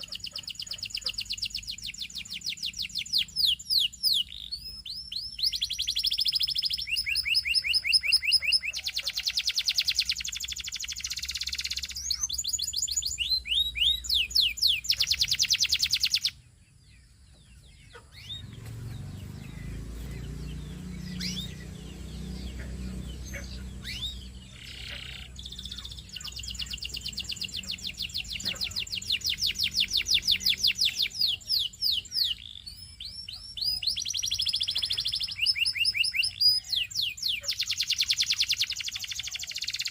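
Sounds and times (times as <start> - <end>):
canary trilling: 0.0 - 16.4, 17.8 - 39.9
scattered chirps: 0.0 - 16.4, 17.8 - 39.9
low background rumble: 16.4 - 31.8.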